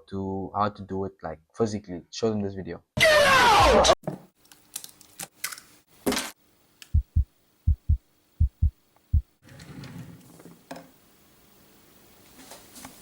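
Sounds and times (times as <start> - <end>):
heartbeat thumps: 6.9 - 9.4.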